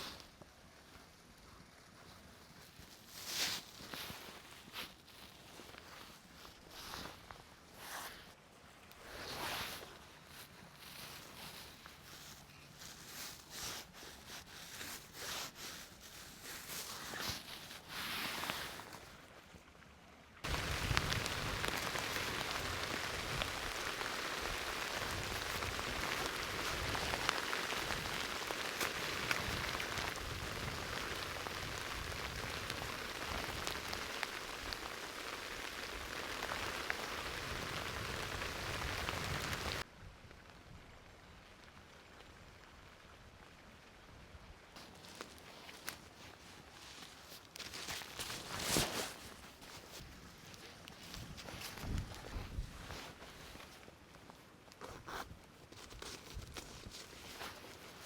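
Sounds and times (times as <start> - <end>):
rustling and handling: 0.0 - 19.4, 20.4 - 39.8, 44.8 - 58.0
heavy rain with dripping: 20.4 - 46.0.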